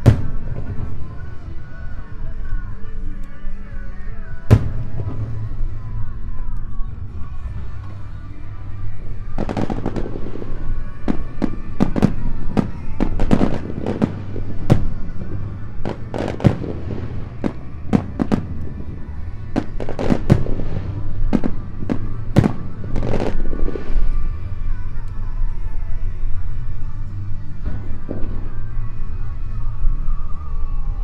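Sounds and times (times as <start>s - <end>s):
firework shells bursting: 0.0s - 24.1s
background music: 0.0s - 31.0s.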